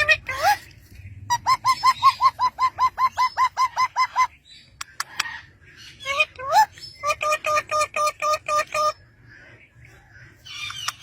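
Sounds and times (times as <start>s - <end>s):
parrot calling: 1.3s - 9.0s.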